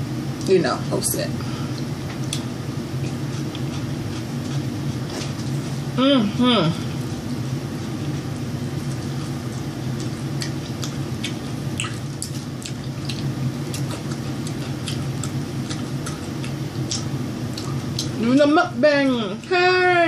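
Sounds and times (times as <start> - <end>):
wet chewing clicks: 8.9 - 18.2.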